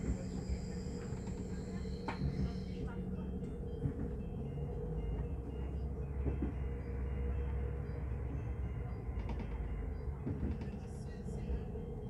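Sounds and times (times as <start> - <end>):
train rumble from inside: 0.0 - 12.0.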